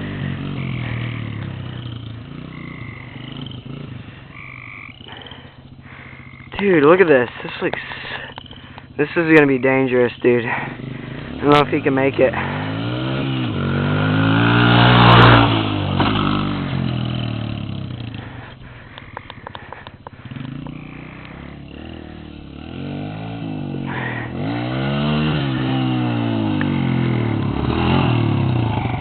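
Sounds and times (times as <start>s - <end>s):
dirt bike engine revving: 0.0s - 29.0s
sharp clicks: 7.7s - 8.9s, 18.9s - 21.4s.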